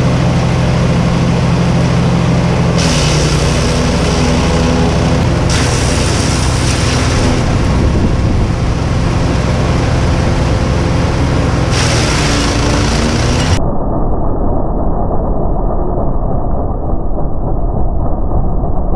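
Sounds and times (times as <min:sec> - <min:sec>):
wood chipper chipping: 0:00.0 - 0:13.6.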